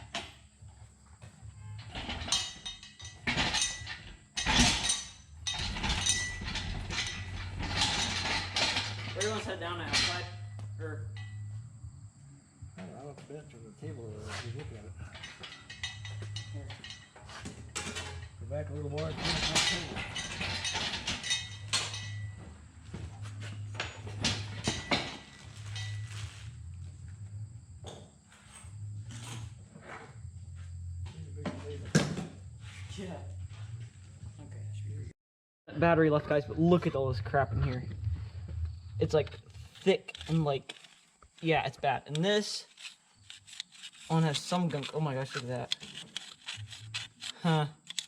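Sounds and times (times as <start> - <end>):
steady low hum: 0.0 - 35.1, 35.7 - 47.9
metal tools clinking and clattering: 1.7 - 11.6, 14.3 - 26.6, 39.6 - 48.0
metal knocks and clatter on table: 15.2 - 18.4, 23.8 - 26.1, 31.4 - 32.4.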